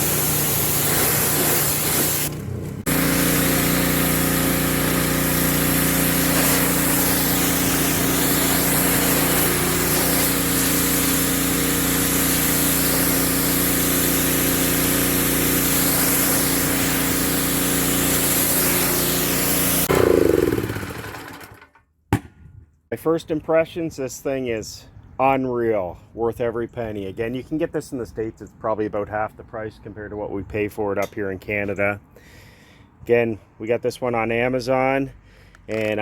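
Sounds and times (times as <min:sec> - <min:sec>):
high-pressure spray hissing: 0:00.0 - 0:02.3, 0:02.9 - 0:19.9
pressure washer engine hum: 0:00.0 - 0:21.6.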